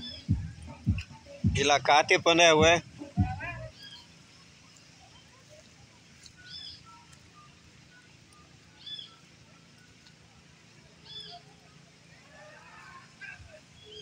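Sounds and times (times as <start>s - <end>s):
faint bird chirps: 3.0s - 14.0s.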